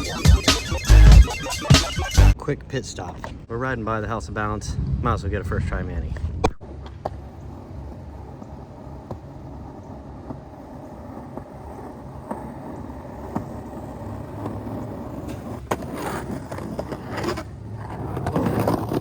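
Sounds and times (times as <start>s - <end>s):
skateboard wheels rolling on pavement: 4.4s - 19.0s.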